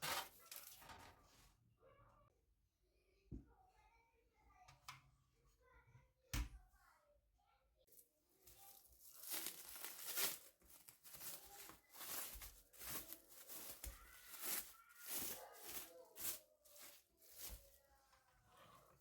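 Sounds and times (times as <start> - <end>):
rustling and crinkling handling noise: 0.0 - 1.4, 7.9 - 19.0.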